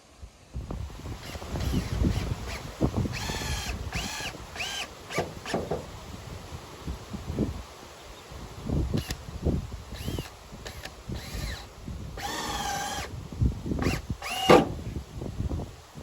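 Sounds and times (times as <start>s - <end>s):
soft knocks and rustling: 5.1s - 6.0s.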